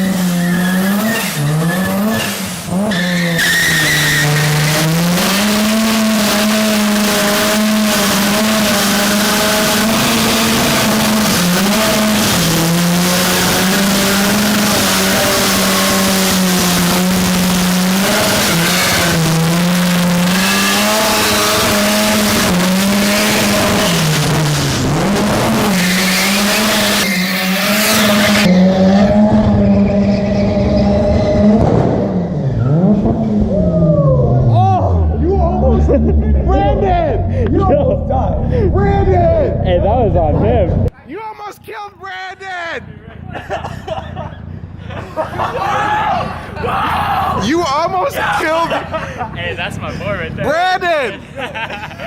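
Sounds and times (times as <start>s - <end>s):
car engine at high revs: 0.0s - 38.7s
tires squealing: 0.0s - 40.8s.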